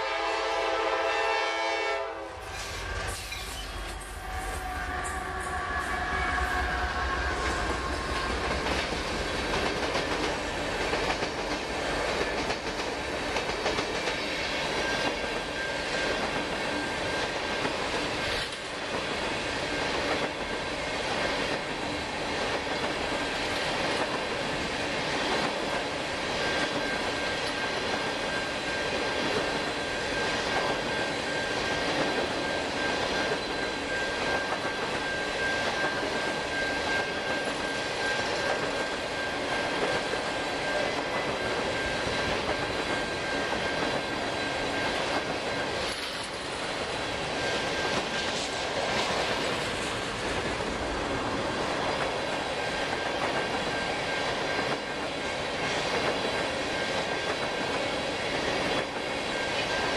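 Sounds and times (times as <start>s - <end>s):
train wheel squeal: 2.4s - 59.9s.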